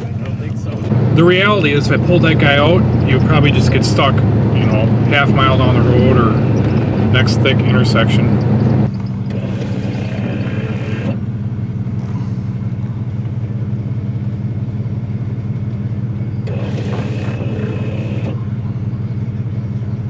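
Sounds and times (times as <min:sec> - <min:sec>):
car engine droning: 0:00.0 - 0:20.0.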